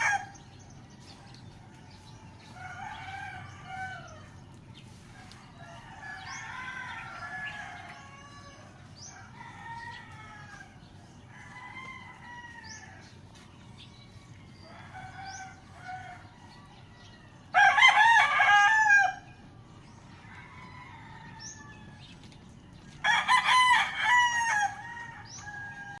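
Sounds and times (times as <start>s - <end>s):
rooster crowing: 0.0s - 0.4s, 2.4s - 4.3s, 5.4s - 13.1s, 17.5s - 19.2s, 20.2s - 22.1s, 23.0s - 26.0s
chickens calling: 0.0s - 26.0s.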